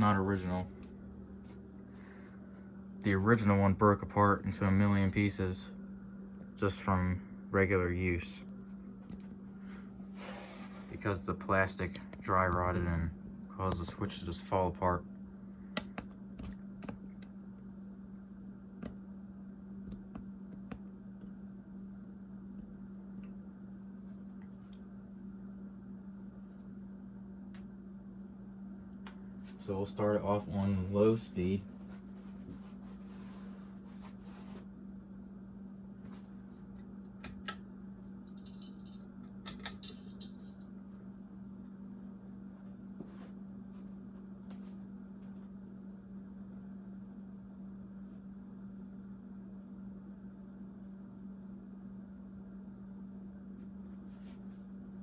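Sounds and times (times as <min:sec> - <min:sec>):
low electrical hum: 0:00.0 - 0:55.0
light metallic clicks and jingles: 0:38.3 - 0:40.6.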